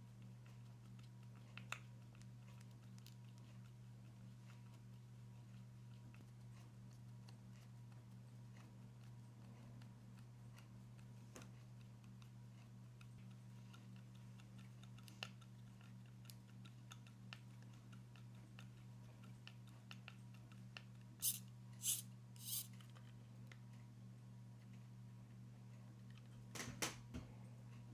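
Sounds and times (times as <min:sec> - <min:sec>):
short rasping sounds: 0:21.2 - 0:22.7
small parts clicking and tapping: 0:21.2 - 0:22.7.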